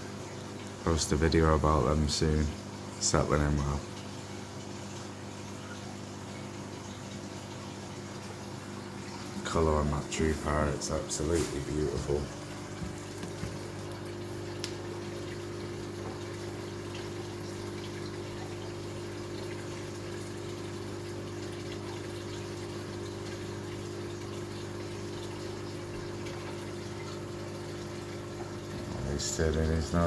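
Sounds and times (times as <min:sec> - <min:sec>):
aquarium pump hum: 0:00.0 - 0:30.0
water flowing and splashing: 0:00.0 - 0:30.0.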